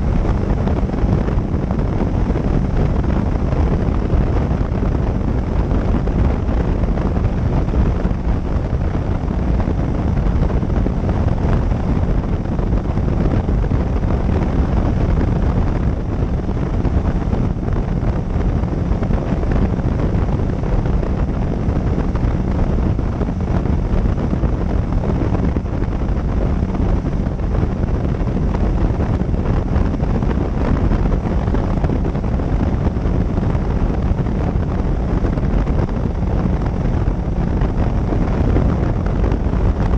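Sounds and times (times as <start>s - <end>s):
road noise: 0.0s - 39.9s
wind rushing over microphone: 0.0s - 39.9s.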